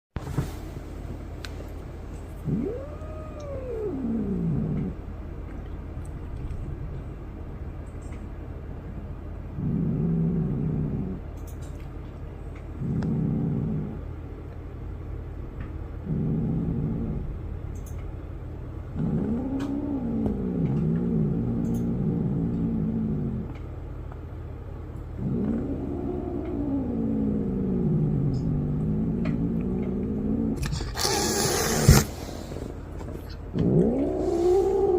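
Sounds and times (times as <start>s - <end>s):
cat growling and yowling: 2.4s - 5.0s, 19.0s - 23.5s, 25.2s - 32.3s, 33.3s - 34.9s
cat hissing: 30.4s - 34.9s.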